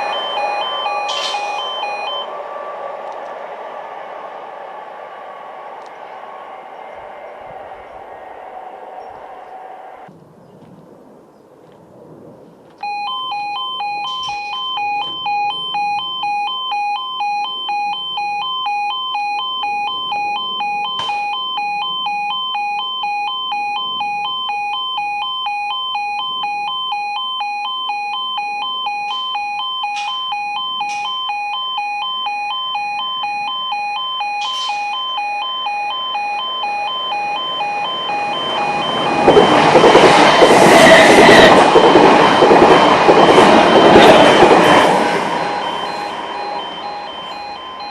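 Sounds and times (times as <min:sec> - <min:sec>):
two-tone electronic crossing alarm: 0:00.0 - 0:06.6, 0:12.8 - 0:47.9
train passing with rushing rumble: 0:00.0 - 0:12.8, 0:34.6 - 0:47.9.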